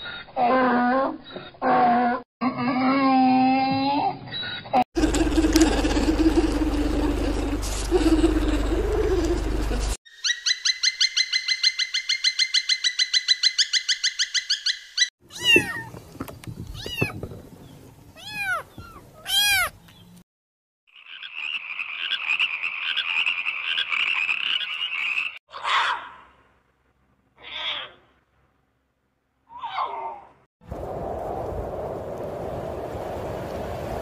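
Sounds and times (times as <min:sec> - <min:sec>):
animal pulsed trill: 0:05.0 - 0:10.0
animal raspy buzz: 0:05.0 - 0:10.0.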